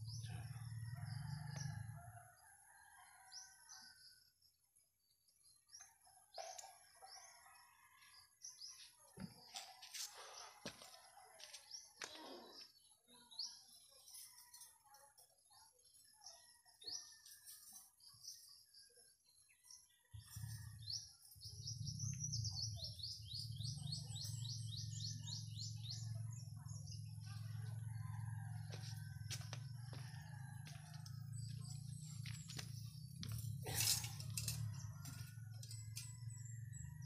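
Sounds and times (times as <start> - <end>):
small birds chirping: 16.9 - 37.0.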